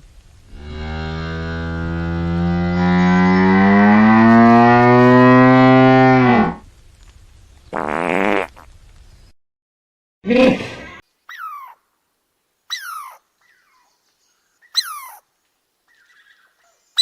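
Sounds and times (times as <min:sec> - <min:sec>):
long low rising animal call: 0:00.5 - 0:06.6
short animal calls: 0:11.3 - 0:11.8, 0:12.7 - 0:13.9, 0:14.7 - 0:15.2.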